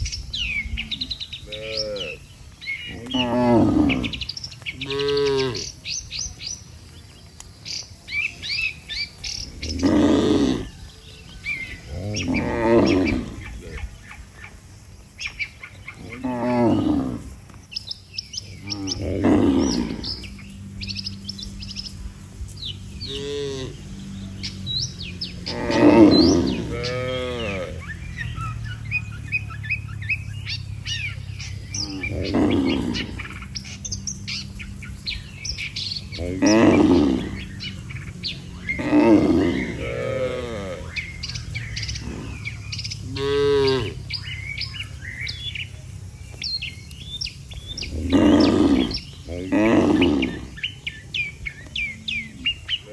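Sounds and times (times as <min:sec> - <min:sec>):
small birds chirping: 0:00.0 - 0:52.9
cattle mooing: 0:00.8 - 0:02.3, 0:02.9 - 0:06.0, 0:09.4 - 0:14.0, 0:15.9 - 0:17.4, 0:18.5 - 0:45.6, 0:47.6 - 0:50.8.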